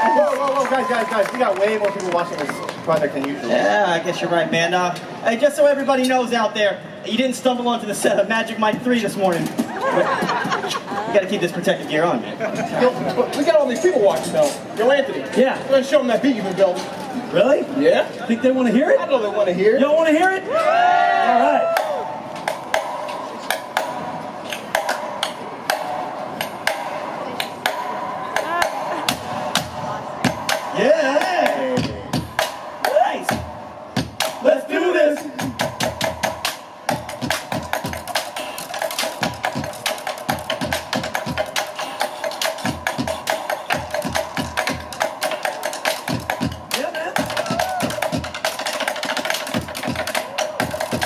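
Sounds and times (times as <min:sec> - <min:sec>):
bucket and pipe drumming: 0:07.3 - 0:11.6, 0:21.6 - 0:51.0.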